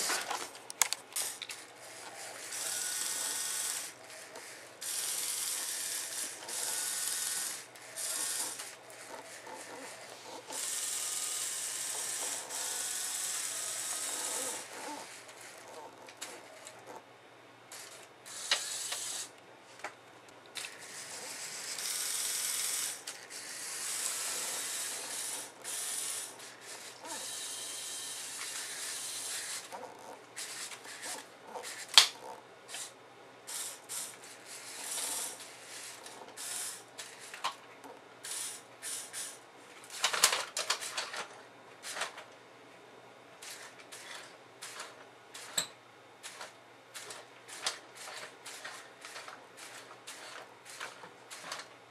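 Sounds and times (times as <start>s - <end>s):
toy motors and plastic gears: 0.0s - 17.0s, 17.7s - 19.9s, 20.5s - 37.6s, 38.2s - 42.3s, 43.4s - 51.7s
sharp plastic clicks: 0.2s - 1.6s.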